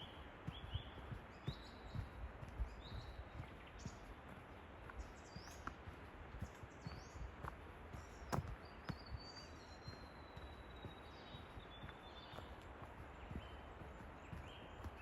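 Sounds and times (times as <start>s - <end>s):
footsteps crunching on forest track: 0.0s - 15.0s.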